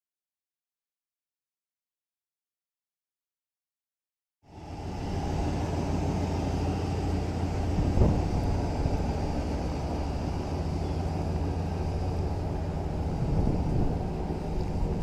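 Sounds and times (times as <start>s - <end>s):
truck engine running: 4.5s - 15.0s.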